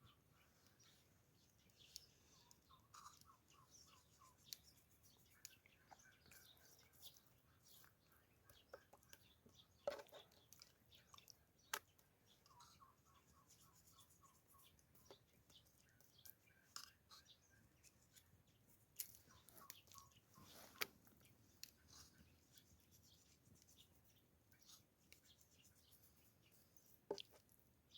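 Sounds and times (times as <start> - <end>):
faint clicks and taps: 1.4 - 12.8, 26.7 - 27.7.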